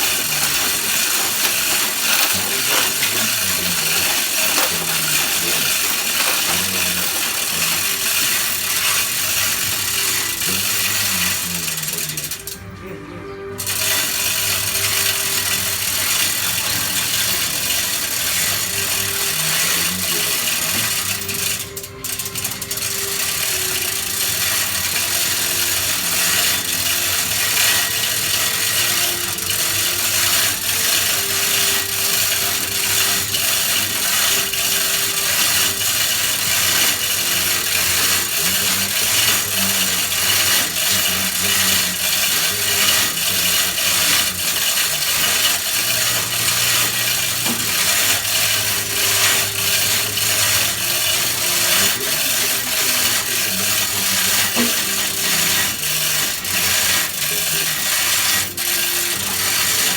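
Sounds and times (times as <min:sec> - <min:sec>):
backhoe engine clattering: 0:00.0 - 0:09.8.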